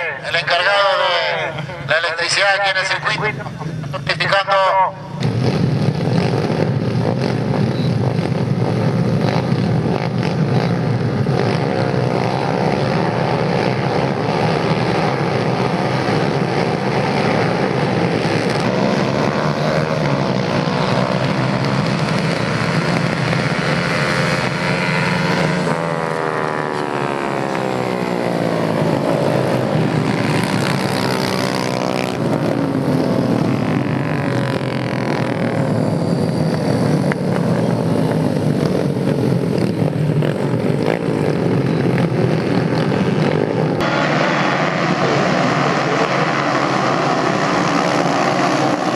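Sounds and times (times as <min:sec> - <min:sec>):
racing motorcycle engines: 0:00.0 - 0:48.9.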